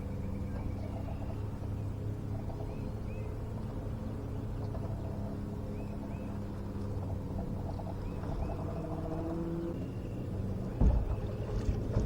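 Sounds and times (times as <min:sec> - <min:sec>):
low motor hum: 0:00.0 - 0:12.0
thump: 0:10.8 - 0:11.2.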